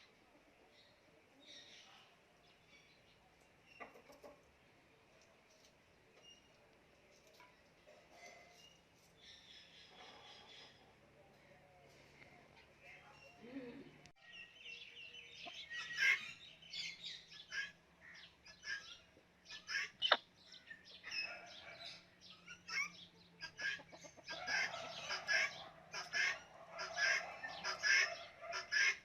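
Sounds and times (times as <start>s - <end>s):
birds squawking and chirping: 8.1s - 11.0s, 14.2s - 29.0s.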